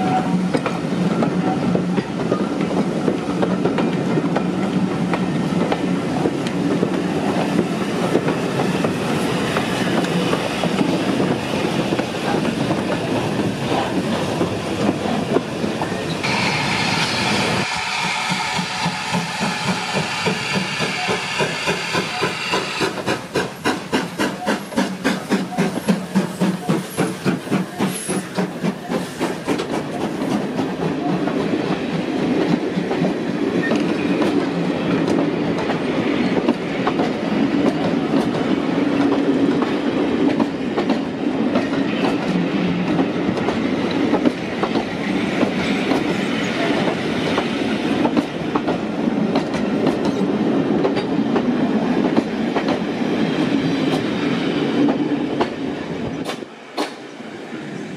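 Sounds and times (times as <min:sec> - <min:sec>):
train wheels clickety-clack: 0:00.0 - 0:57.2
steam locomotive rhythmic beat: 0:16.2 - 0:31.4.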